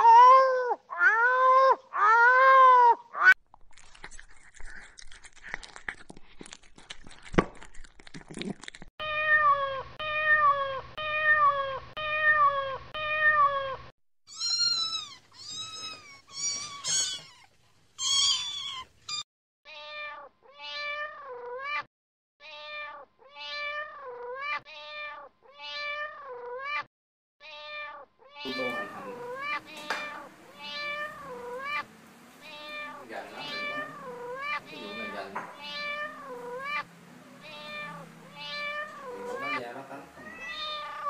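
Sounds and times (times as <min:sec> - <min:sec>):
cat meowing: 0:00.0 - 0:03.4, 0:09.0 - 0:41.0
cat eating from bowl: 0:03.5 - 0:08.9.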